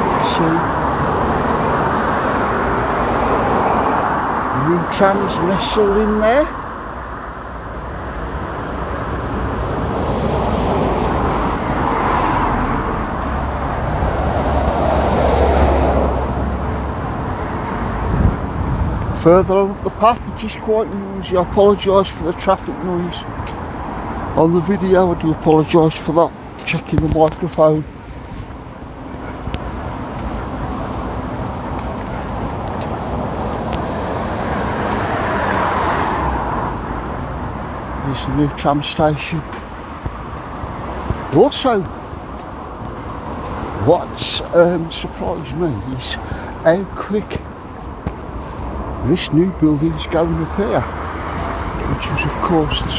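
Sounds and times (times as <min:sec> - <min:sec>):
cars passing close by: 0:00.0 - 0:52.9
heavy vehicle low rumble: 0:00.0 - 0:52.9
road traffic noise: 0:00.0 - 0:52.9.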